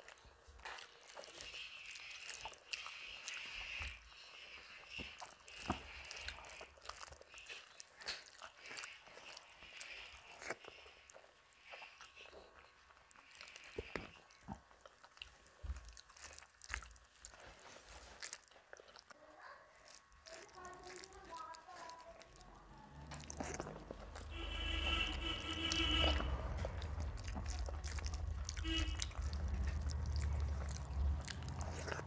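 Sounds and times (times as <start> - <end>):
fingers mixing rice on plate: 0.0 - 19.1, 19.8 - 32.0
chewing food: 0.0 - 32.0
wet mouth clicks: 25.1 - 32.0.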